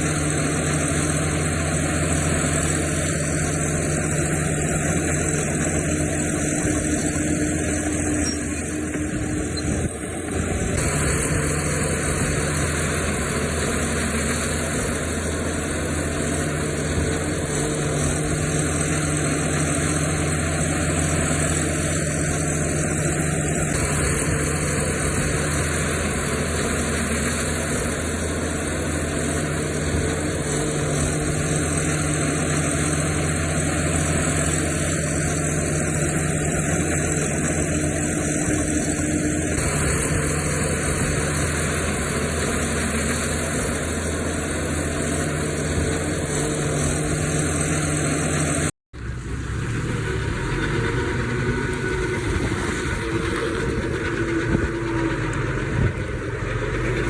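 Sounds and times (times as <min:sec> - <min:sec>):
heavy machinery diesel engine: 0:00.0 - 0:57.0.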